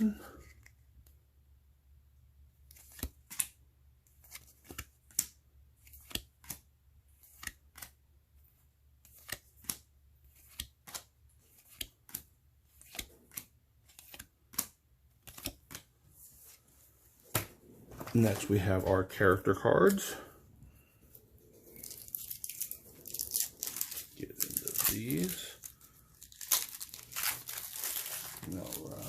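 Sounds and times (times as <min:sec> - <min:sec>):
cards snapping and tapping: 0:04.2 - 0:06.6, 0:09.0 - 0:15.9.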